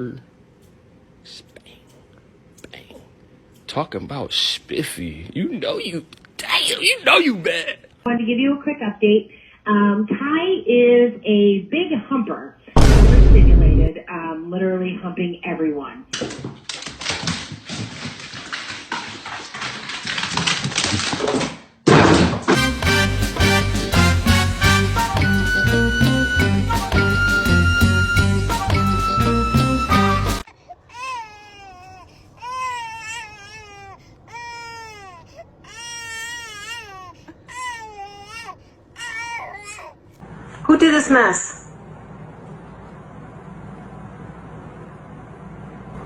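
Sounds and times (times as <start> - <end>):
animal clicks and scuffles: 16.2 - 21.6.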